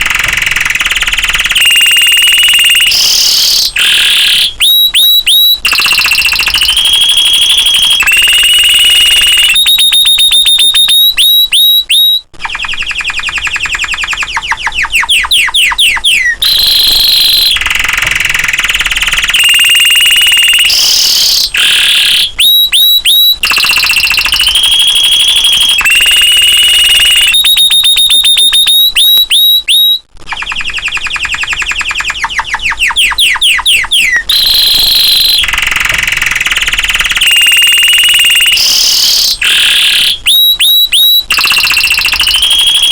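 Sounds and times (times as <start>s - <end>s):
canary singing: 0.0s - 42.9s.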